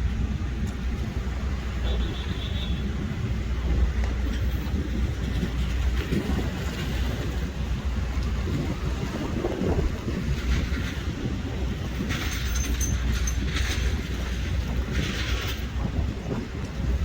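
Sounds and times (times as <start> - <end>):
heavy vehicle rumble: 0.0 - 17.0.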